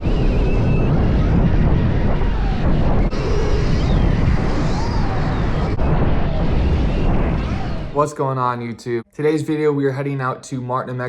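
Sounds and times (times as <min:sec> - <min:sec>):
heavy wind: 0:00.0 - 0:08.1.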